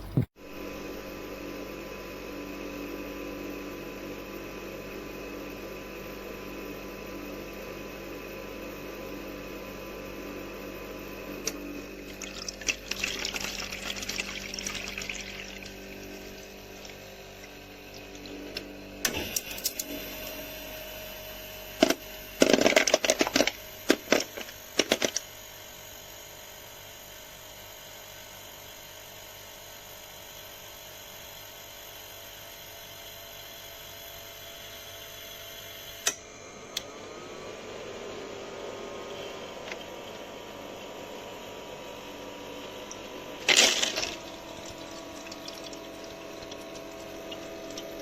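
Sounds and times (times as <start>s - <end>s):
ice maker humming: 0.0s - 27.8s, 28.5s - 48.0s
ice clattering knocks: 43.4s - 48.0s.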